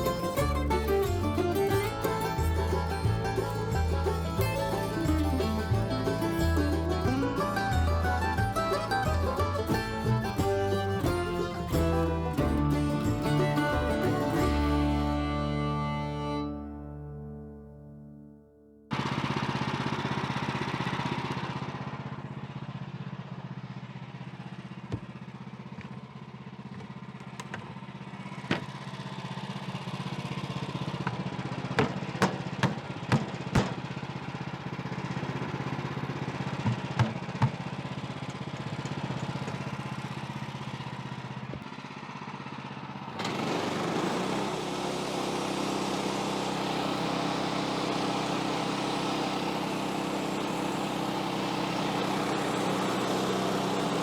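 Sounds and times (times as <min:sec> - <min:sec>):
small gasoline engine running: 0:00.0 - 0:17.2, 0:18.9 - 0:54.0.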